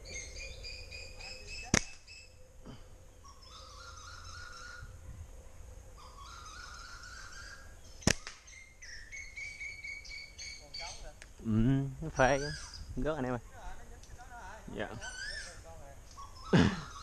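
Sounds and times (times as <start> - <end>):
bird whistling rising notes: 0.0 - 2.5, 3.1 - 11.0
birds chirping: 0.0 - 17.0
slingshot snap: 1.7 - 2.1, 8.0 - 8.5.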